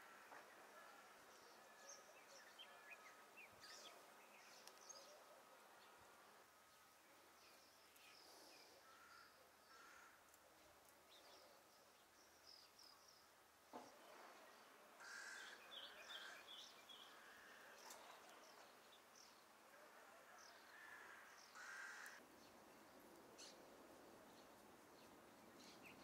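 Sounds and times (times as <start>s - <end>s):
birds chirping: 0.0s - 19.6s.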